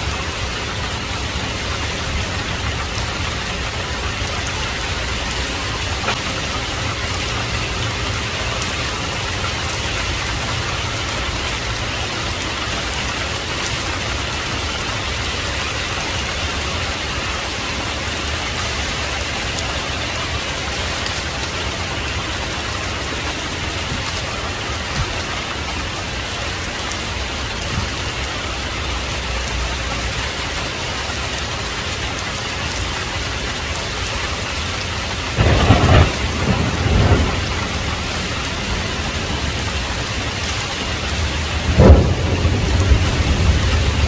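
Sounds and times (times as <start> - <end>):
heavy rain falling: 0.0 - 44.0
thunder crack and rumble: 35.3 - 44.0.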